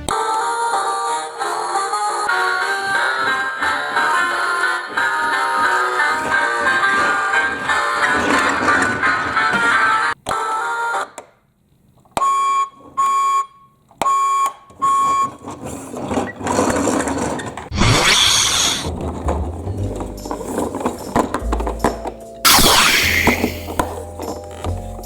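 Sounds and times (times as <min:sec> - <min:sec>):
short electronic beeps: 0:22.5 - 0:23.8
brief loud hiss: 0:22.5 - 0:23.9.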